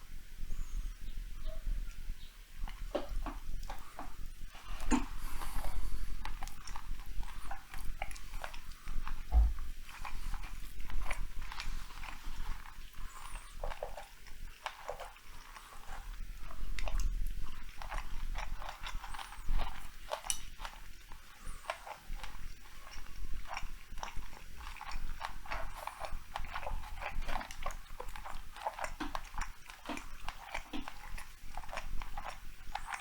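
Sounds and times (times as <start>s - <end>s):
person chewing food: 1.9s - 33.0s.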